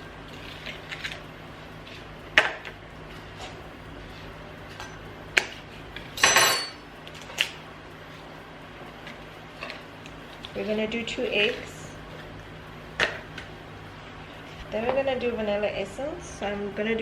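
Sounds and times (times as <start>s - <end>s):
bowls and utensils clinking: 6.2s - 6.8s.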